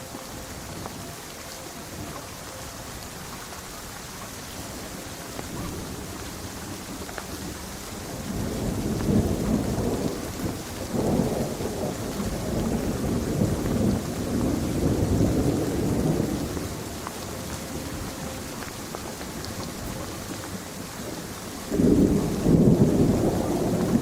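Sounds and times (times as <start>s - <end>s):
steady rain: 0.0s - 24.0s
thunder rolling: 5.5s - 19.0s, 19.8s - 24.0s.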